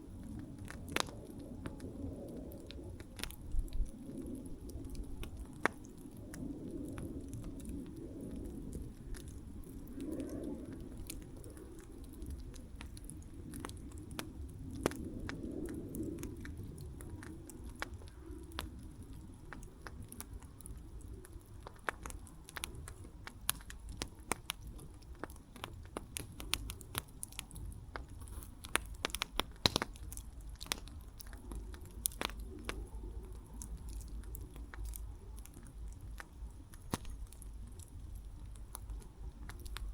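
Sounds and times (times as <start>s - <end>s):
campfire crackling: 0.0s - 39.9s
low rumble of flame: 0.0s - 39.9s.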